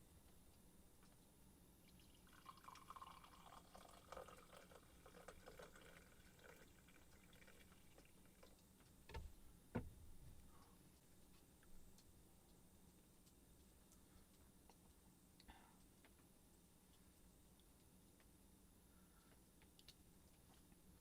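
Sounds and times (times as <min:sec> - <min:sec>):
liquid pouring into container: 0:01.9 - 0:08.7.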